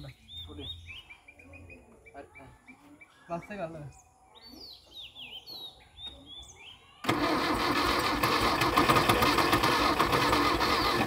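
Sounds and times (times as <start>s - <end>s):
birds chirping: 0.0s - 7.7s
car engine starter cranking: 7.0s - 11.0s.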